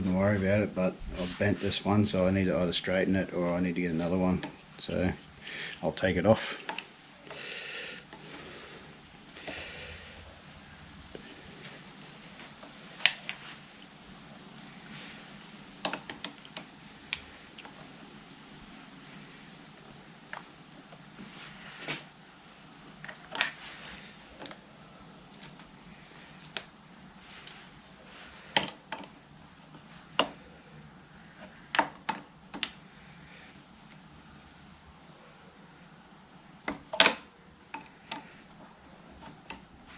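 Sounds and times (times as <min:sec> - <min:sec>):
hand tools clicking and knocking: 0:15.8 - 0:16.7, 0:28.5 - 0:29.1, 0:36.9 - 0:38.3.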